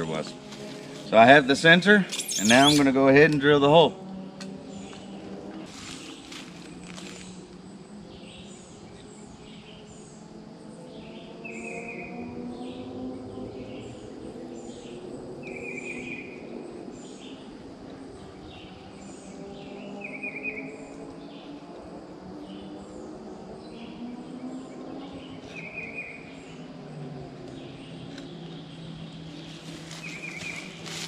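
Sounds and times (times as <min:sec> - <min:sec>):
birds chirping: 0:00.0 - 0:31.0
low wavering hum: 0:00.0 - 0:31.0
bird buzzy trill: 0:02.1 - 0:02.9.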